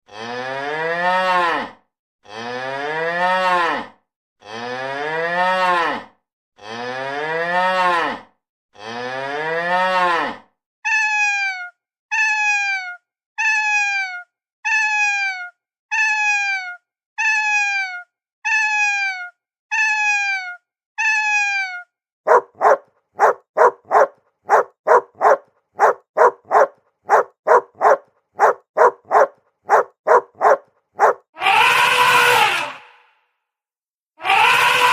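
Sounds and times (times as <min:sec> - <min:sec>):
cow mooing: 0:00.1 - 0:01.7
dog barking: 0:22.3 - 0:31.2.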